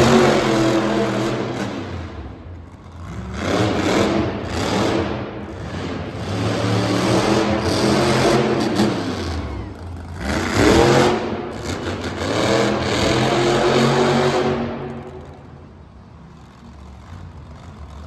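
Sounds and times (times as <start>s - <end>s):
truck engine revving: 0.0s - 18.0s.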